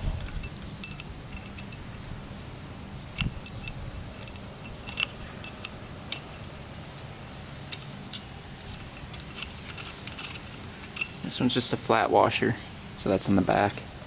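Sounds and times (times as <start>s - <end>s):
metallic clicks of small parts: 0.2s - 2.0s, 3.1s - 6.6s, 7.7s - 11.2s.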